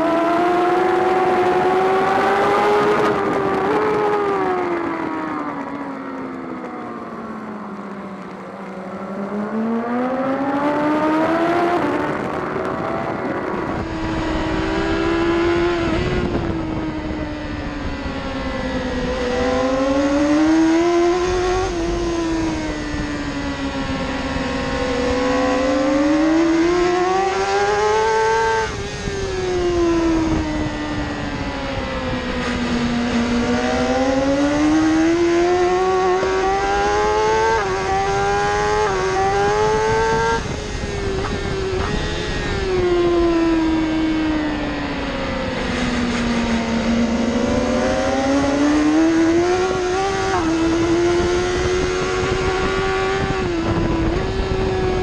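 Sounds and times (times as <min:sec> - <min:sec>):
motorcycle engine revving: 0:00.0 - 0:55.0
wind rushing: 0:10.8 - 0:55.0.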